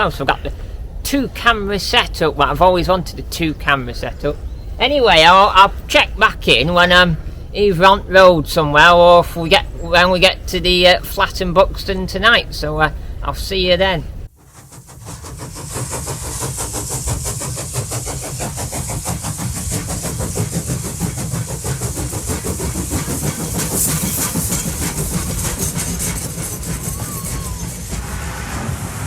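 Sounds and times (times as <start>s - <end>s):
road noise: 22.1s - 29.0s.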